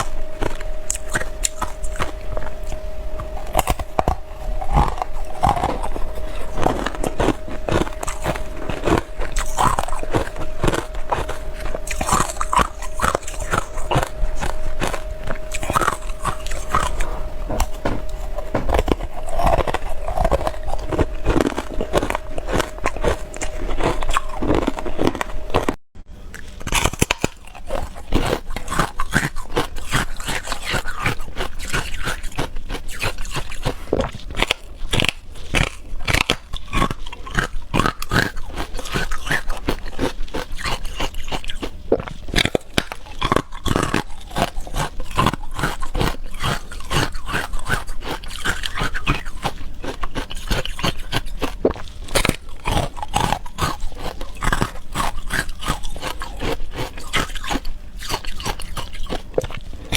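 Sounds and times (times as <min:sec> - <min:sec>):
ice crunching while chewed: 0:00.0 - 0:59.9.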